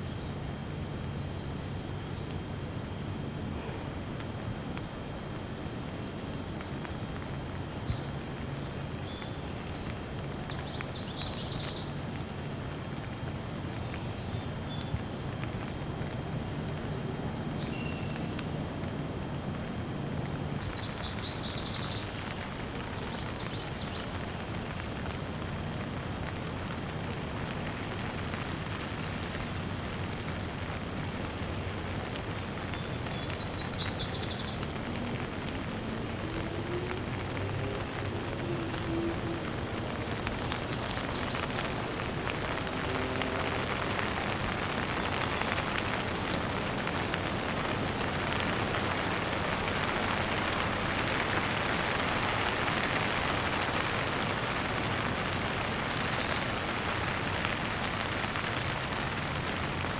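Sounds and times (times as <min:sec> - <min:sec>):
light rain hiss: 0:00.0 - 0:59.9
small birds chirping: 0:06.2 - 0:12.1, 0:20.6 - 0:24.3, 0:32.6 - 0:35.1, 0:37.9 - 0:42.9, 0:54.8 - 0:56.9.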